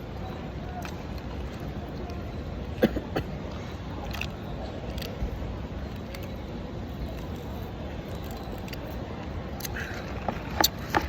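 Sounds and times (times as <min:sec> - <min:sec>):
shopping mall background noise: 0:00.0 - 0:11.0
chewing food: 0:04.0 - 0:06.4, 0:07.0 - 0:11.0.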